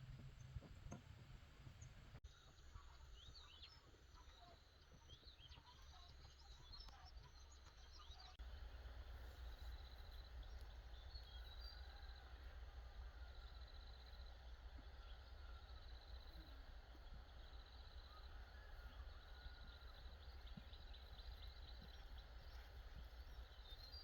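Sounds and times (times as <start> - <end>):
small birds chirping: 0.0 - 24.0
low background rumble: 8.4 - 24.0.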